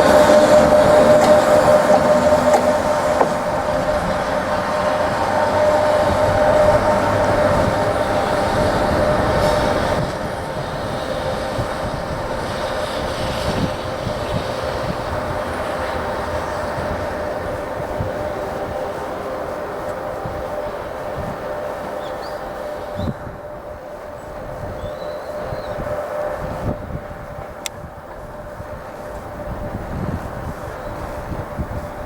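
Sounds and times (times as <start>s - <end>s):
cooling blowers whining: 0.0s - 32.0s
wheels rumbling on rails: 0.0s - 32.0s.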